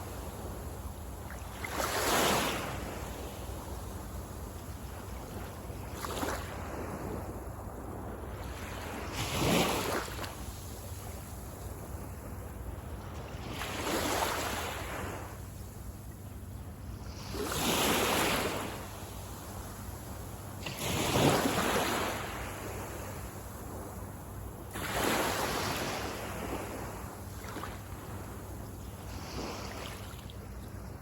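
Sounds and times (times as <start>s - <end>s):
small waves breaking on sand: 0.0s - 15.9s, 17.0s - 31.0s
low rumble of surf: 0.0s - 31.0s.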